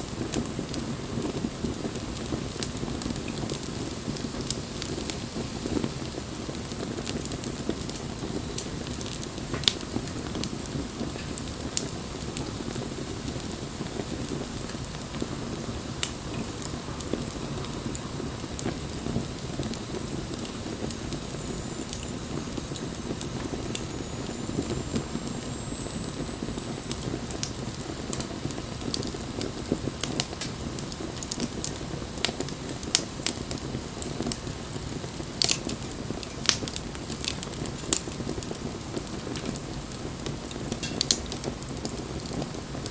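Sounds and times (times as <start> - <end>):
bonfire flames hissing: 0.0 - 42.9
burning wood crackling and popping: 0.0 - 42.9.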